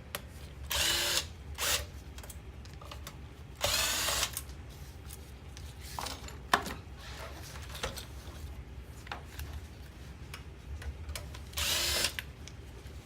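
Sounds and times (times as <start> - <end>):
cordless power screwdriver whirring: 0.7 - 1.9, 3.6 - 4.4, 11.6 - 12.2.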